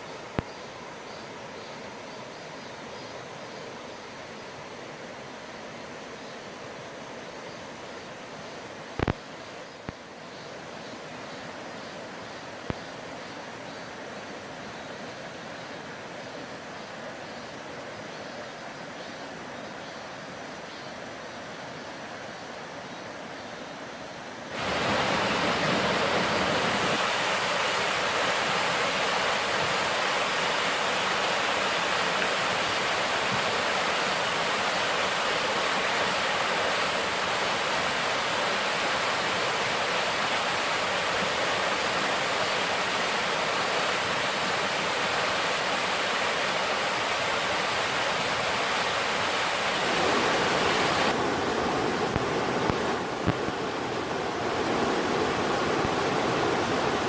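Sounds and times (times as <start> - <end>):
stream water rushing over rocks: 24.4 - 57.0.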